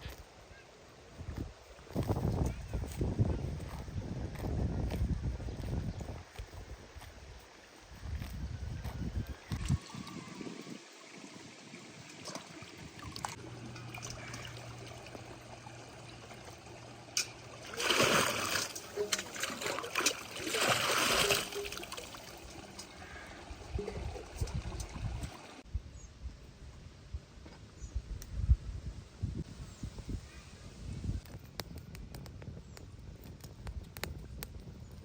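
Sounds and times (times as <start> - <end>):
water trickling and splashing: 9.3 - 25.6.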